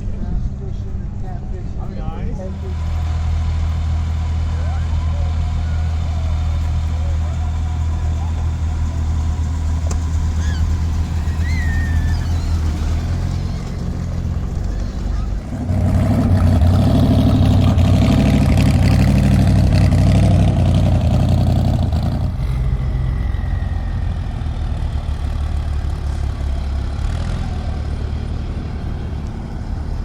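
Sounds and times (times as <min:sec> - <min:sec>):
truck engine rumbling: 0:00.0 - 0:30.0.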